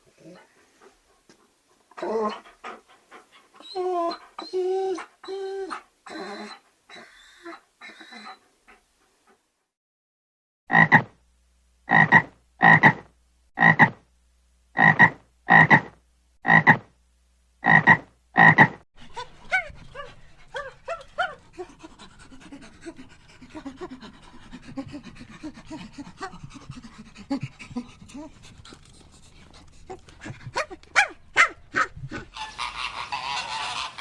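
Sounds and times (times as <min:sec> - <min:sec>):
dog panting: 0:00.1 - 0:05.2, 0:19.0 - 0:33.9
dog whining and yelping: 0:02.0 - 0:02.8, 0:03.4 - 0:08.8, 0:19.0 - 0:22.0
dog barking: 0:30.6 - 0:32.2.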